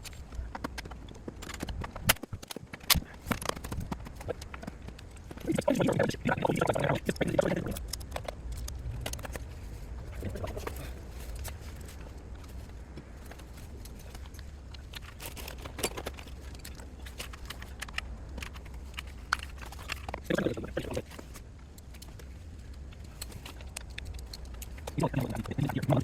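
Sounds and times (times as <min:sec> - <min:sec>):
low hum: 0:00.0 - 0:26.0
person mumbling: 0:05.4 - 0:07.8, 0:25.0 - 0:26.0.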